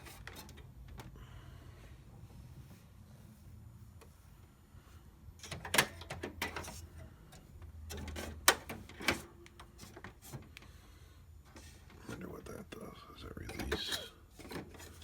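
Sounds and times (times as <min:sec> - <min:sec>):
plastic printer parts clicking: 0:05.4 - 0:10.6.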